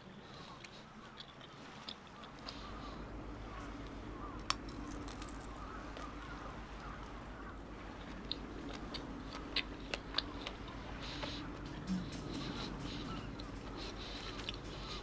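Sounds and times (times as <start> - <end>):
low steady hum: 0.0 - 15.0
person chewing: 0.3 - 2.9, 4.4 - 7.2, 7.9 - 15.0
crisp clicks: 4.4 - 7.2.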